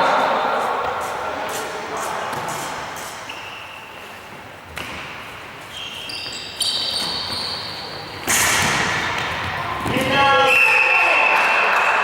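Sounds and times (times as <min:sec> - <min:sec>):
sneakers squeaking on court floor: 0:02.3 - 0:11.2.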